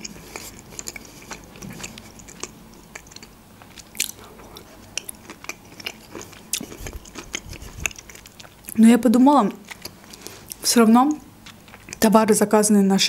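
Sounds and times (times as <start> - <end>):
close-miked chewing: 0.0 - 8.8, 9.4 - 12.1.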